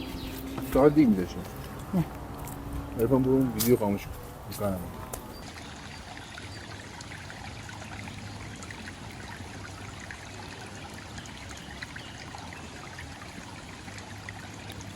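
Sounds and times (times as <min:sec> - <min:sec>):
flowing water rushing: 0:00.0 - 0:14.9.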